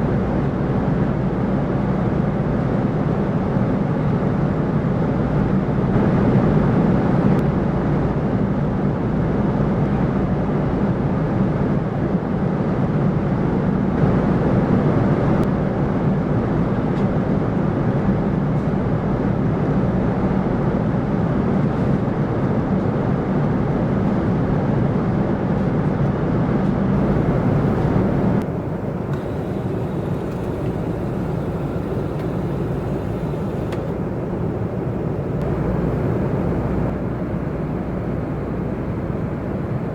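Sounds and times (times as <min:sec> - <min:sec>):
aircraft cabin engine rumble: 0:27.0 - 0:39.9.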